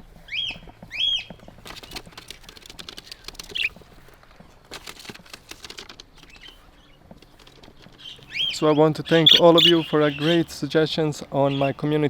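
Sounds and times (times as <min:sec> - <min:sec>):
claws and wings rustling on wire: 0:00.1 - 0:09.8
budgie chirp: 0:03.4 - 0:03.7, 0:08.3 - 0:10.4.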